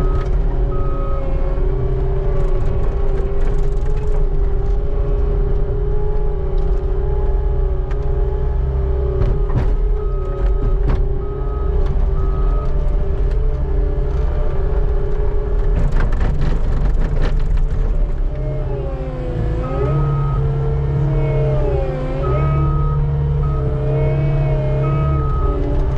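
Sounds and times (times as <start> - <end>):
skid steer engine running: 0.0 - 25.9
backup alarm beeping: 21.1 - 25.7.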